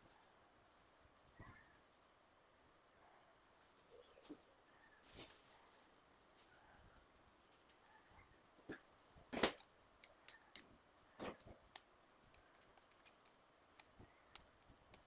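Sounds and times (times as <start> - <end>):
eating clicks and taps: 11.3 - 15.0.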